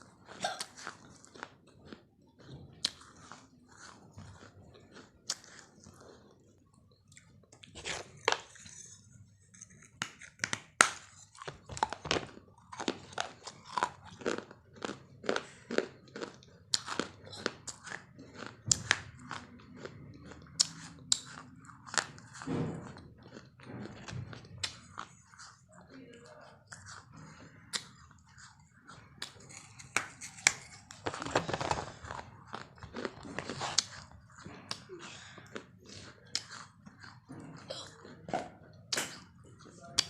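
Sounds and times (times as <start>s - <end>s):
crunchy food being chewed: 0.0s - 40.0s.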